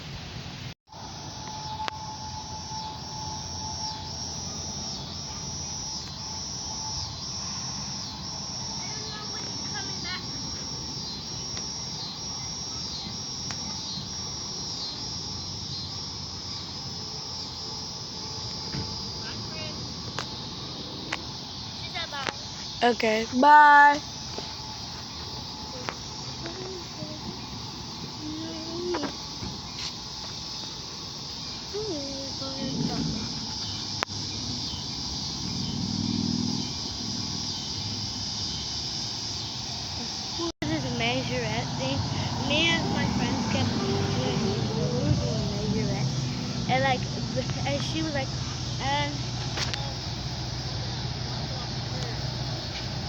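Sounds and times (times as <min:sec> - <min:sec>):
insects trilling: 0:00.0 - 0:53.0
background rumble: 0:31.8 - 0:34.7, 0:40.6 - 0:53.0
vehicle engine running: 0:40.4 - 0:53.0.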